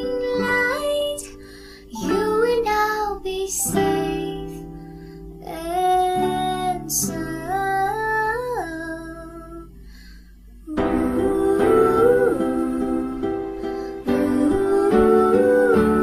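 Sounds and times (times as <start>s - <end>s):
woman singing: 0.0s - 4.7s, 5.4s - 9.8s, 10.6s - 16.0s
acoustic guitar: 0.0s - 10.2s.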